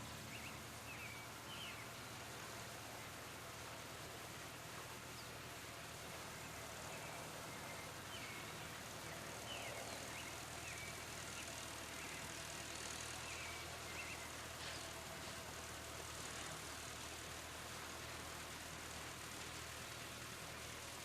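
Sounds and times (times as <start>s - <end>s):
tractor engine humming: 0.0s - 21.0s
birds chirping: 0.2s - 2.3s, 6.4s - 15.4s.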